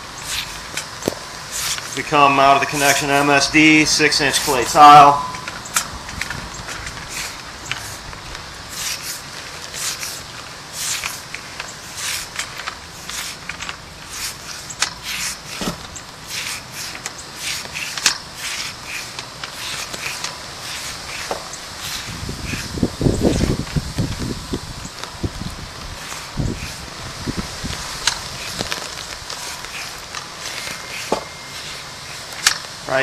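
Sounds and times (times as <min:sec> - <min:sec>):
cable scraping through pipe: 0:01.5 - 0:03.3, 0:26.0 - 0:32.6.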